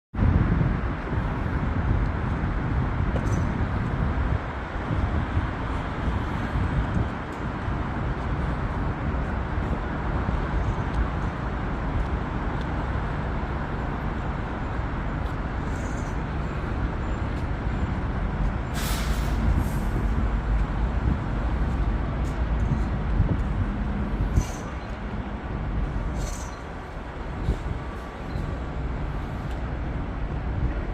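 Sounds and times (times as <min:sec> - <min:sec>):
heavy machinery engine rumble: 0:00.2 - 0:30.9
air hiss release: 0:18.7 - 0:20.0.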